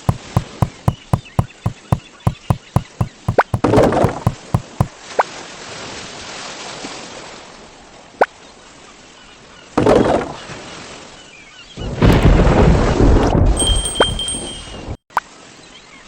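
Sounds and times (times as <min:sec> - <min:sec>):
rapid sharp clicks: 0:00.0 - 0:04.9.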